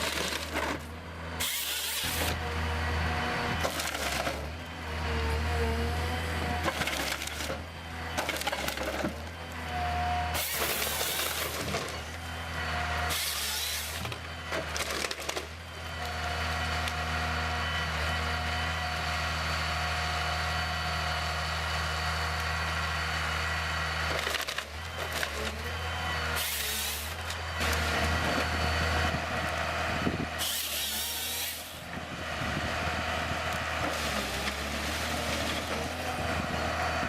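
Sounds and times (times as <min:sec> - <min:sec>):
wood cracking and splintering: 0:00.0 - 0:02.4, 0:03.6 - 0:04.6, 0:06.6 - 0:09.7, 0:10.3 - 0:12.2, 0:13.0 - 0:17.1, 0:24.0 - 0:25.7, 0:33.4 - 0:36.1
heavy machine engine running: 0:00.0 - 0:37.0.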